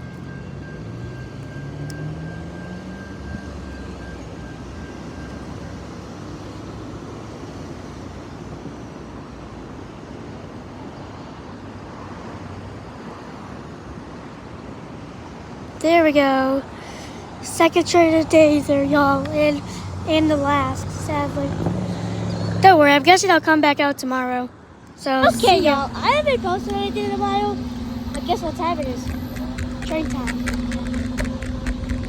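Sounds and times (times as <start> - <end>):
train rumbling past: 15.9 - 23.8, 25.1 - 32.0
low engine tone rising: 25.2 - 32.0.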